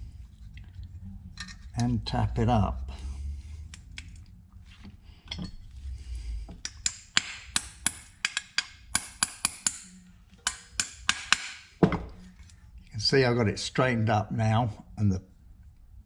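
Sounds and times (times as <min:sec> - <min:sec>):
hammer tapping steel punch: 0:06.6 - 0:12.1.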